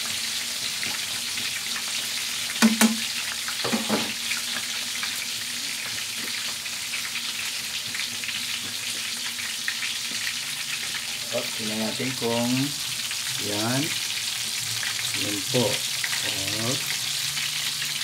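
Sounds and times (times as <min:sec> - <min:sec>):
chicken deep-frying in oil: 0:00.0 - 0:18.0
sharp knocks: 0:02.6 - 0:03.0.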